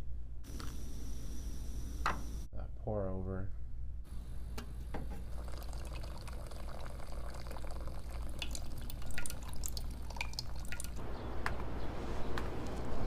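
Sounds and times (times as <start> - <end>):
steady hiss: 0.5 - 2.5
water drops plinking: 5.5 - 11.0.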